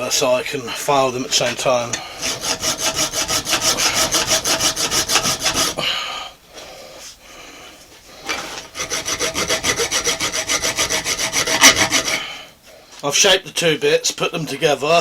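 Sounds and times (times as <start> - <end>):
hand file scraping metal: 1.3 - 5.8, 8.2 - 12.4.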